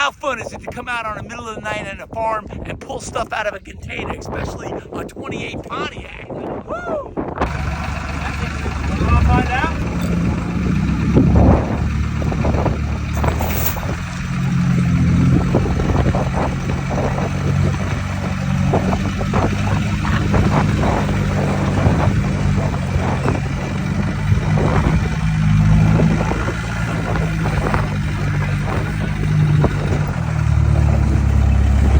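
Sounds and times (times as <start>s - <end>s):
forklift engine running: 7.4s - 31.9s
metal clanks and knocks: 7.5s - 31.8s.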